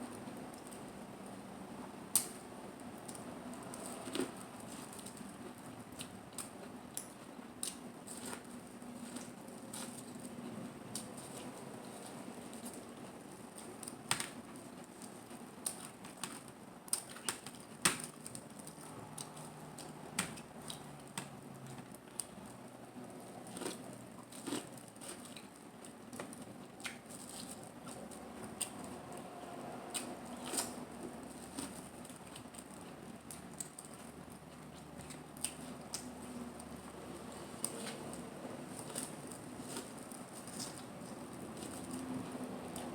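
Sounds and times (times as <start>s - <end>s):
chewing and mouth smacks: 23.4s - 42.9s.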